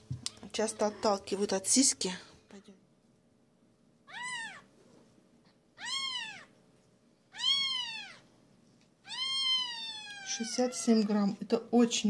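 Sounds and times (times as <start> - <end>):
kitten mewing: 4.1 - 4.7, 5.8 - 6.5, 7.3 - 8.2, 9.0 - 10.9.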